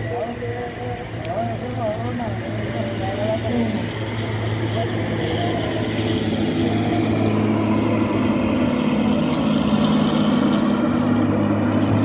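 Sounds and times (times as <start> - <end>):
rumbling train wheels: 0.0 - 12.0
train engine drone: 0.0 - 12.0.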